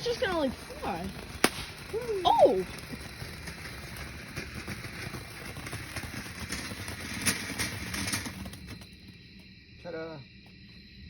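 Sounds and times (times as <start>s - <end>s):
firework hissing and crackling: 0.0s - 10.1s
sharp pop: 1.4s - 1.8s.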